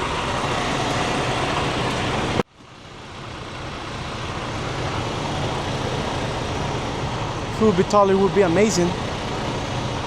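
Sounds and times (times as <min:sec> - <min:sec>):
truck engine hum in cab: 0:00.0 - 0:10.0.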